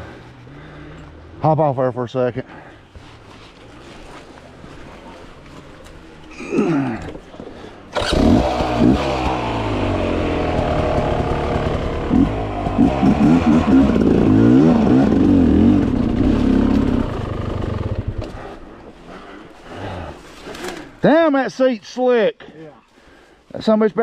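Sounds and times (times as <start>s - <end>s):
dirt bike engine revving: 7.9s - 18.5s.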